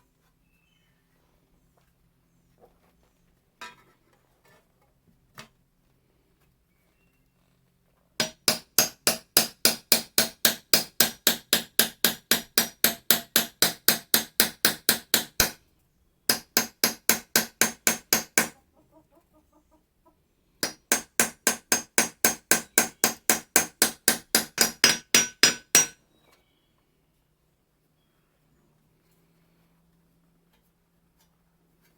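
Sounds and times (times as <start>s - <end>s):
hammer peening scythe blade: 20.6s - 26.0s.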